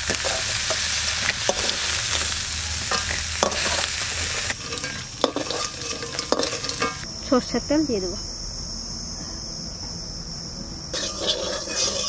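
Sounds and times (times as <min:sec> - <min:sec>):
crab sizzling in hot oil: 0:00.0 - 0:07.1, 0:10.9 - 0:12.0.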